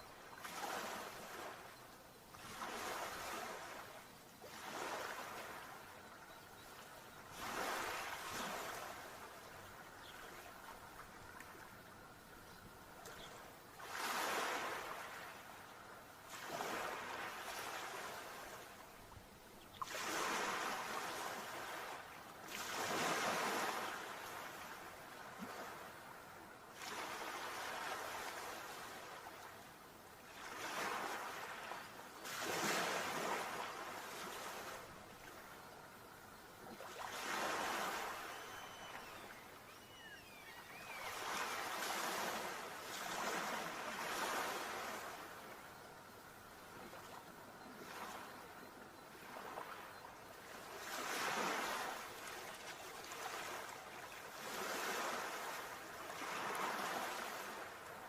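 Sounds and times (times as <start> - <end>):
sea waves breaking: 2.4 - 6.0, 7.3 - 11.8, 13.7 - 15.6, 16.2 - 18.8, 19.8 - 26.1, 30.4 - 35.6, 36.7 - 45.6, 50.5 - 57.8.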